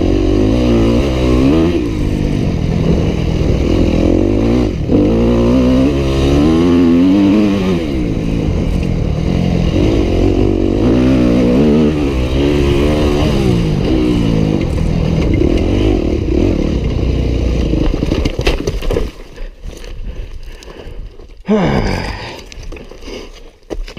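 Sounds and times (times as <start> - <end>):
dirt bike engine revving: 0.0 - 18.2.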